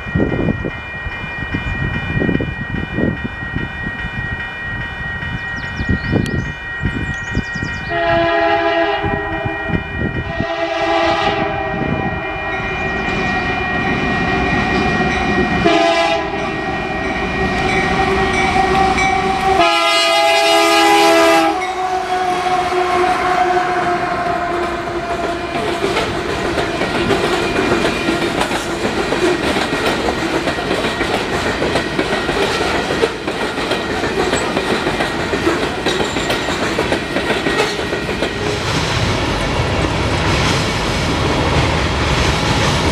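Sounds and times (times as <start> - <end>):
locomotive air horn blasts: 7.9 - 12.6, 15.6 - 25.7
wheels clacking: 24.6 - 38.7.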